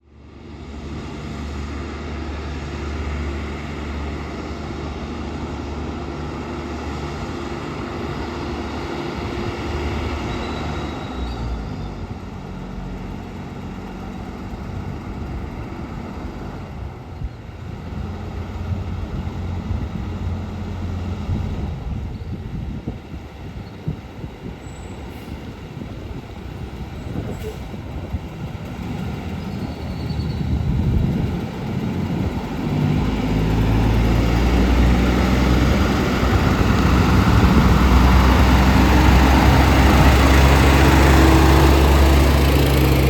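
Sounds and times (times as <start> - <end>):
garbage truck engine running: 25.7 - 43.0.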